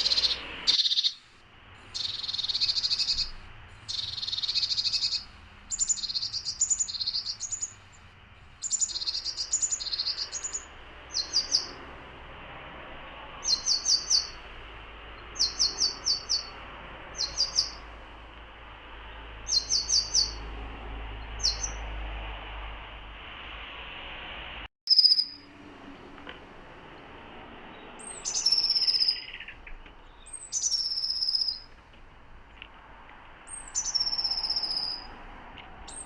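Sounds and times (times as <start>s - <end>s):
tits calling: 0.0s - 12.0s, 13.2s - 20.5s, 21.2s - 22.0s, 24.9s - 25.6s, 27.7s - 31.8s, 33.3s - 35.2s, 35.8s - 36.0s.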